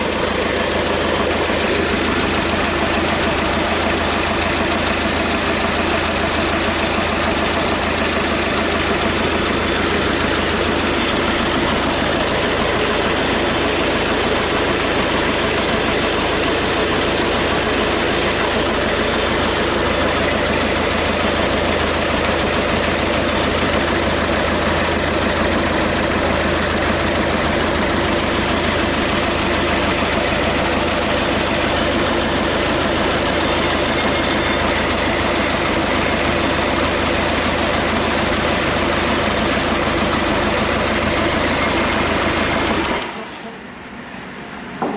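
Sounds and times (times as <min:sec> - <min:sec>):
diesel engine idling: 0:00.0 - 0:44.9.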